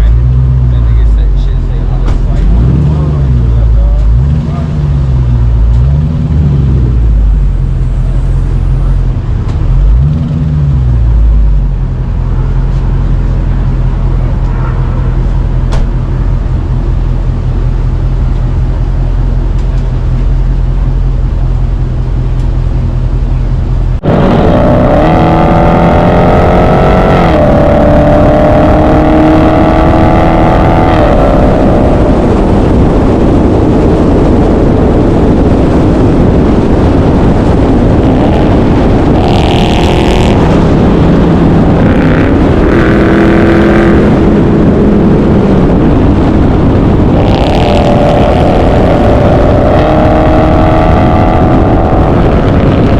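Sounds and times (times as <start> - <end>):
car engine idling: 0.0 - 25.4
engine revving high: 24.0 - 33.5, 37.2 - 52.9.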